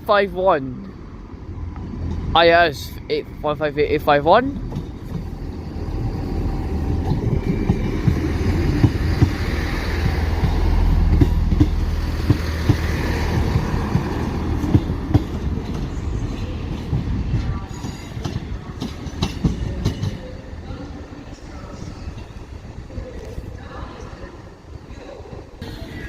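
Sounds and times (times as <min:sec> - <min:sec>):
diesel train engine rumble: 0:00.0 - 0:26.0
wheels clicking over rail joints: 0:06.4 - 0:20.3.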